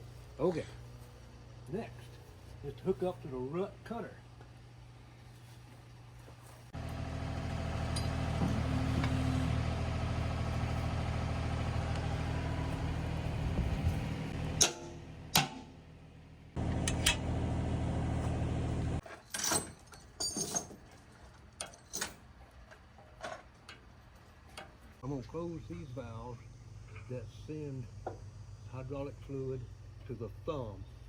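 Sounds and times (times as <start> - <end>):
mini excavator engine running: 6.8 - 15.4, 16.6 - 19.0
sharp knocks and clanks: 14.6 - 15.7.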